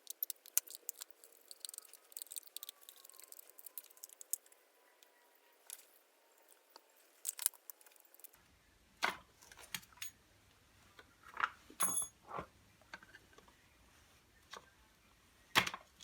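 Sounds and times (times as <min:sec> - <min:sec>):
metallic clink: 0:11.8 - 0:12.1.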